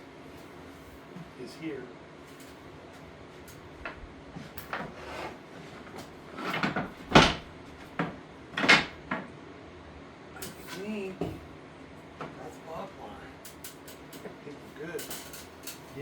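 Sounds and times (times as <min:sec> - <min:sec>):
scrap wood knocking and clattering: 0:03.8 - 0:09.3.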